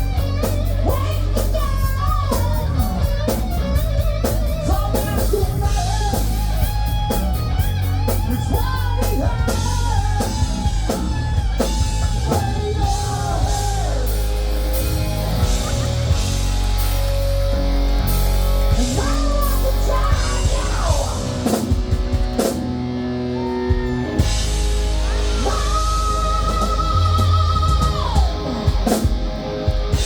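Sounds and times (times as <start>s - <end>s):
heavy metal band playing: 0.0s - 30.0s
lead guitar bending notes: 0.0s - 30.0s.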